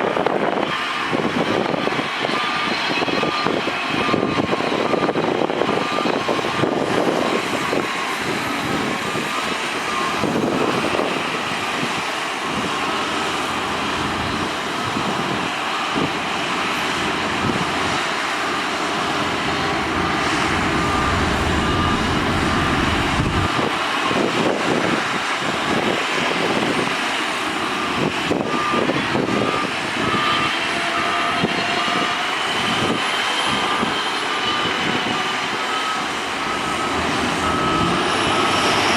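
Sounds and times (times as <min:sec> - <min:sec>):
diesel engines running: 0:00.1 - 0:38.9
reversing beeper: 0:02.3 - 0:11.2, 0:17.0 - 0:24.9, 0:27.6 - 0:38.9
deep rumble: 0:18.9 - 0:23.8.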